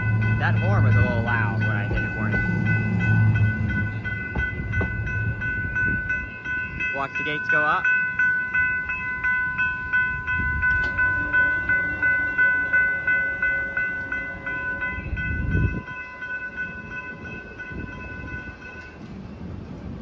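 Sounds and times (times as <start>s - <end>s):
low rumble: 0.0s - 6.5s
electronic crossing bells ringing: 0.0s - 19.0s.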